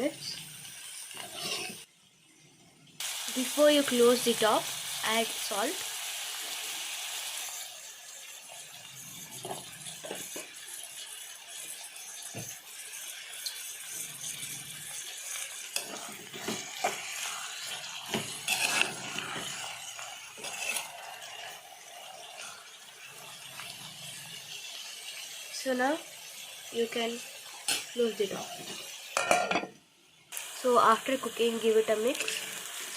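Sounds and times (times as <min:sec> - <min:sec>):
vegetables sizzling in oil: 0:00.0 - 0:01.9, 0:03.0 - 0:29.7, 0:30.3 - 0:32.9.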